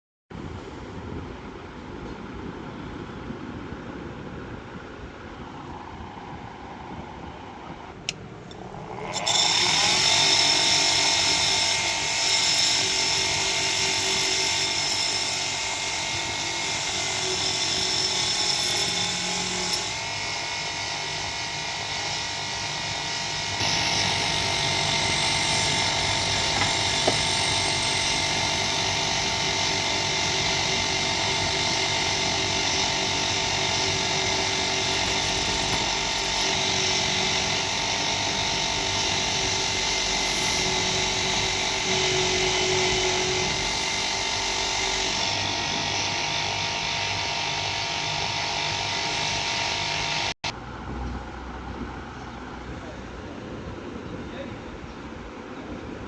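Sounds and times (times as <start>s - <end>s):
power tool motor whining: 8.5s - 50.4s.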